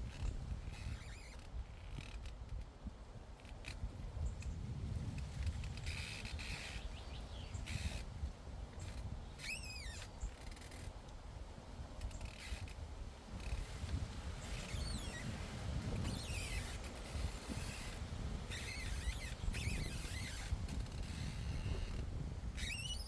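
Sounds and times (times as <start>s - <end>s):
wind rumble on microphone: 0.0s - 23.0s
short chirping bird call: 9.4s - 10.4s, 18.5s - 20.4s, 22.6s - 23.0s.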